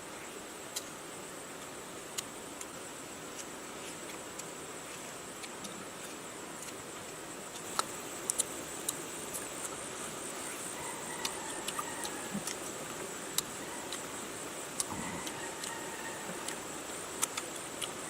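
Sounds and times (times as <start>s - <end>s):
high insect drone: 7.2s - 18.0s.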